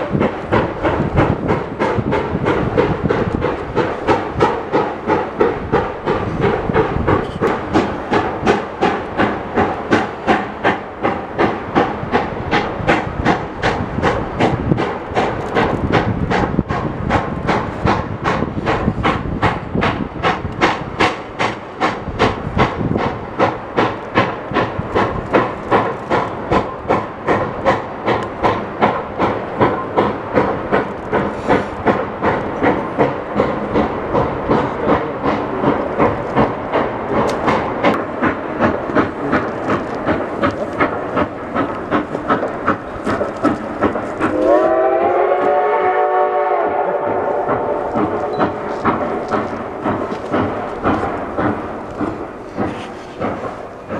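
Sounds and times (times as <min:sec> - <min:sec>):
steam hiss: 0:00.0 - 0:53.9
steam locomotive exhaust chuffing: 0:00.0 - 0:53.9.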